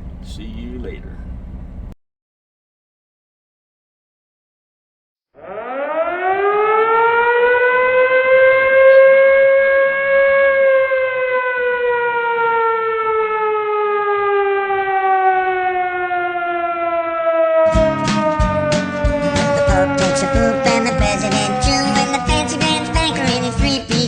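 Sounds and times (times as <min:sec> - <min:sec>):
siren wailing: 0:05.4 - 0:23.1.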